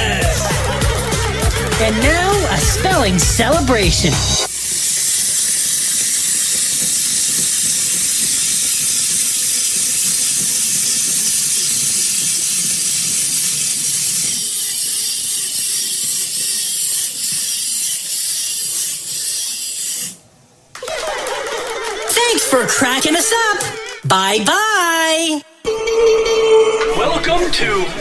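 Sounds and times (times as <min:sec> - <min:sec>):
loud steady hissing: 0:00.0 - 0:20.8.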